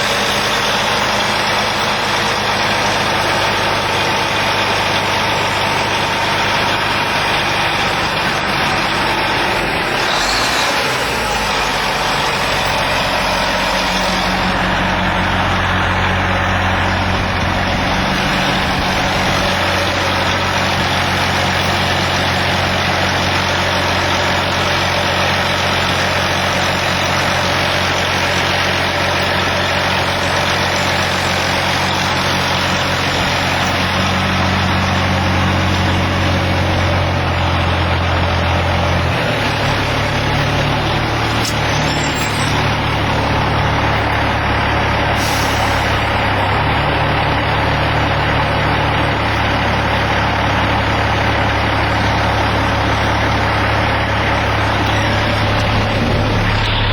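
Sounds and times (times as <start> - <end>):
diesel truck engine running: 0.0 - 56.9.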